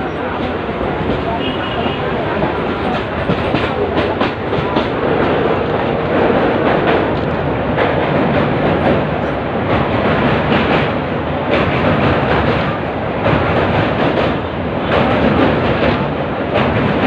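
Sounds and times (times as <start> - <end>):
train rumbling on track: 0.0 - 17.0
wheels clicking over rail joints: 2.4 - 17.0.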